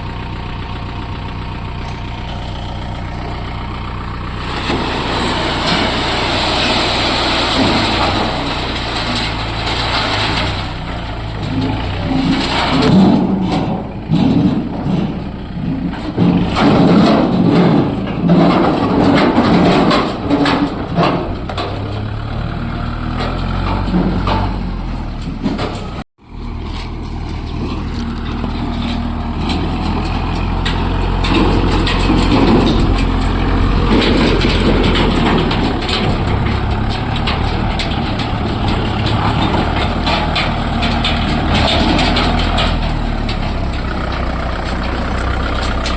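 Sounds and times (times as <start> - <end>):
clatter: 0.0 - 45.9
tractor diesel engine running: 0.0 - 45.9.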